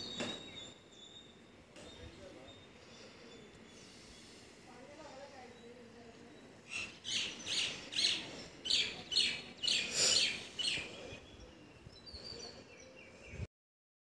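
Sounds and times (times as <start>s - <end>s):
bird chirping: 0.0s - 13.5s.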